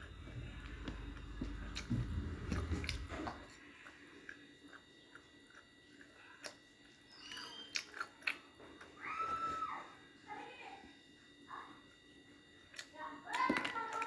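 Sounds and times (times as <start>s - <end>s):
chewing and biting food: 0.0s - 9.4s, 12.7s - 14.0s.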